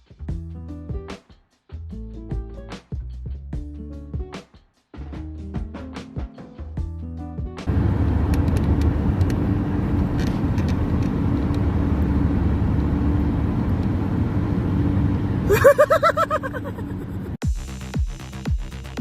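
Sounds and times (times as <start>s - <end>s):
low engine rumble: 7.7s - 17.4s.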